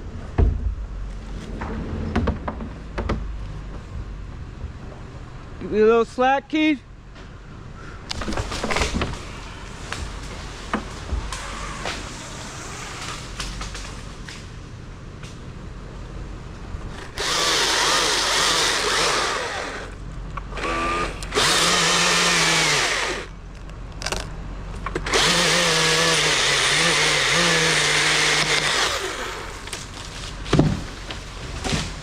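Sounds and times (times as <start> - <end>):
chainsaw cutting wood: 17.0 - 23.3, 25.0 - 32.0.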